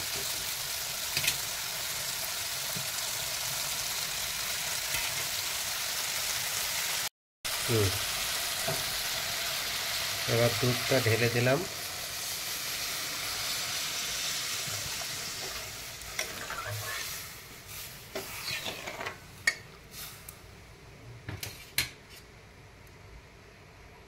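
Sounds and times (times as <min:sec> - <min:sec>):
curry sizzling: 0:00.0 - 0:20.5
spatula scraping in a pan: 0:12.2 - 0:20.2.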